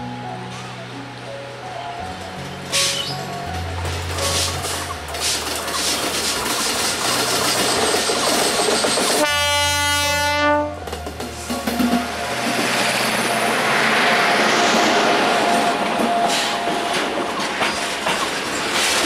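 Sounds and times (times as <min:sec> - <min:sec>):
train wheels on rails: 0:02.2 - 0:19.0
locomotive horn blast: 0:09.2 - 0:10.9.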